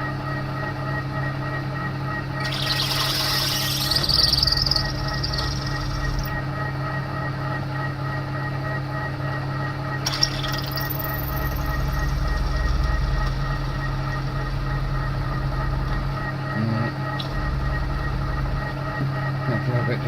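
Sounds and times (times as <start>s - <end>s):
milling machine humming: 0.0s - 20.0s
drill bit boring into steel: 2.4s - 6.4s.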